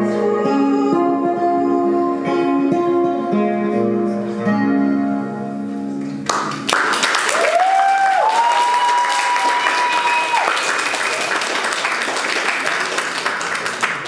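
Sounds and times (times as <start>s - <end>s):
audience applause: 6.0s - 14.0s.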